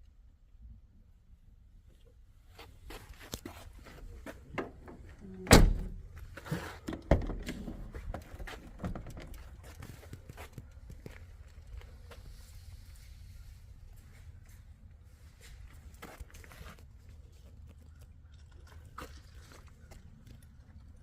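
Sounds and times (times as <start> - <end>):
clicks and knocks of vehicle handling: 4.5 - 10.2
car door shutting: 5.4 - 6.0.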